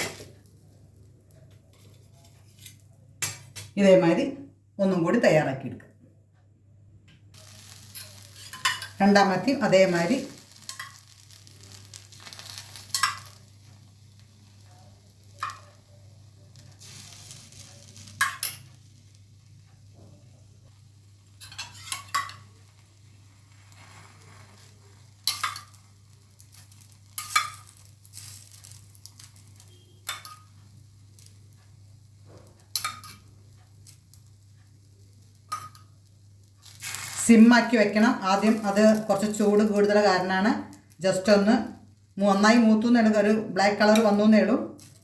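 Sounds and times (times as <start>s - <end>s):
bread sizzling in a pan: 0.0s - 3.6s, 7.3s - 45.0s
utensil scraping and clinking pan: 7.4s - 9.0s, 21.4s - 22.5s.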